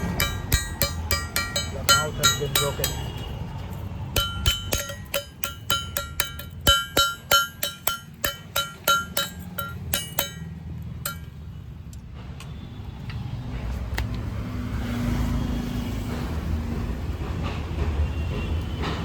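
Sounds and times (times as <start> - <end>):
hammer striking metal: 0.0 - 11.6.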